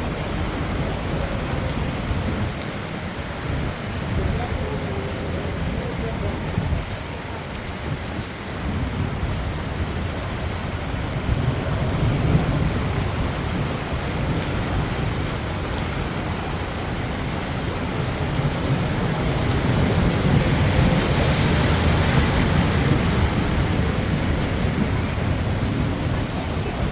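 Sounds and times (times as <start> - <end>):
heavy rain pouring: 0.0 - 26.9
thunder rumbling: 7.8 - 26.9.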